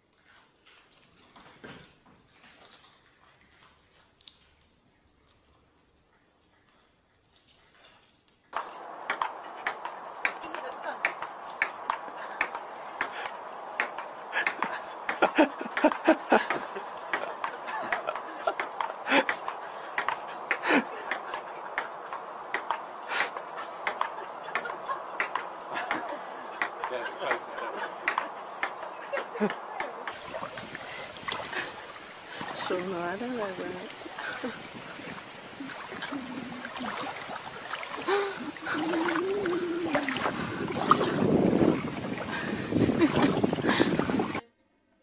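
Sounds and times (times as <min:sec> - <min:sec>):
person making wavering calls: 0:38.3 - 0:40.3.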